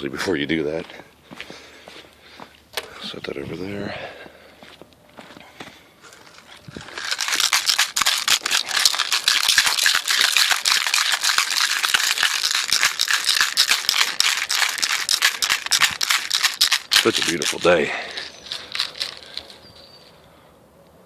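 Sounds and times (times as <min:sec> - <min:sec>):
fuel tank rattling when shaken: 0:06.6 - 0:19.6.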